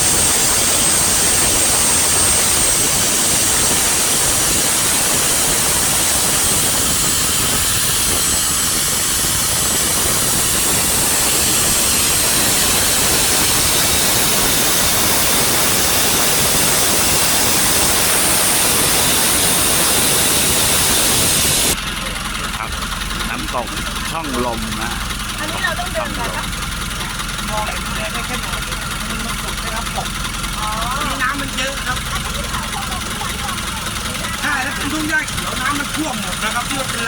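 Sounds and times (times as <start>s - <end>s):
motorboat engine and wind rush: 0.0s - 26.5s.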